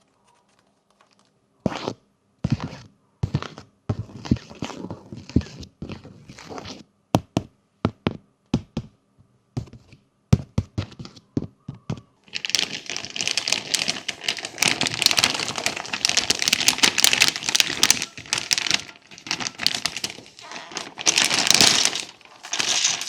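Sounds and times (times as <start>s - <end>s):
plastic crinkling: 12.3s - 23.0s.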